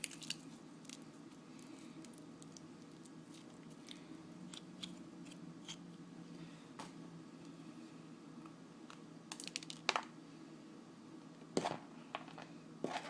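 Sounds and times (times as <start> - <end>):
soft wet squishes: 0.0 - 5.4
low steady hum: 0.0 - 13.0.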